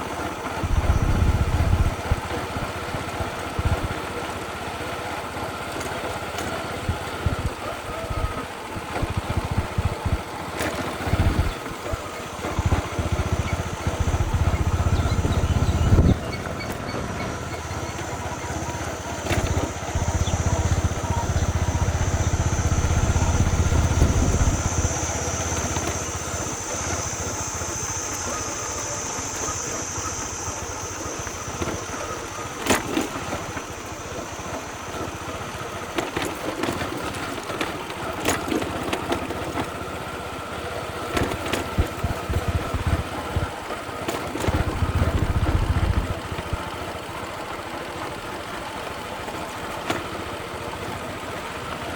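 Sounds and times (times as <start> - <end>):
motorcycle engine rumble: 0.0 - 51.9.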